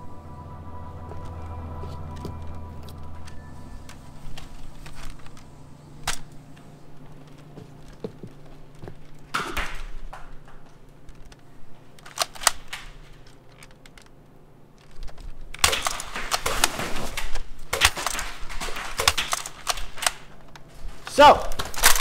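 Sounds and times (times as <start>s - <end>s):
toy blasters clicking and firing: 15.5s - 20.3s.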